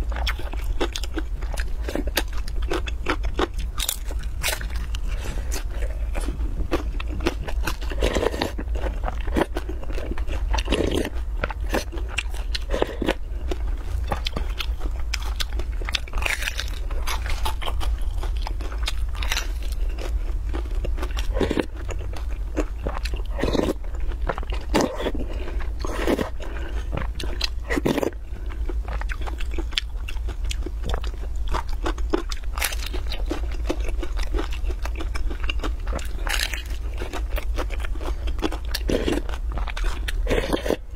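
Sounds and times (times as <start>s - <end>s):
steady low hum: 0.0s - 40.9s
wet chewing: 0.0s - 40.9s
crunchy bites of flatbread: 15.2s - 21.8s, 31.5s - 40.9s.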